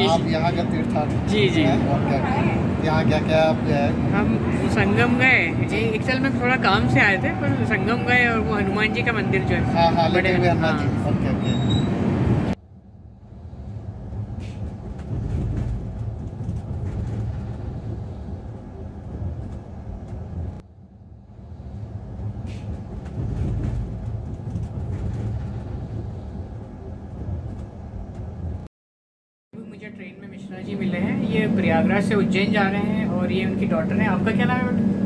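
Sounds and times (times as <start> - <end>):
train coach rumbling: 0.0 - 28.7, 29.6 - 35.0.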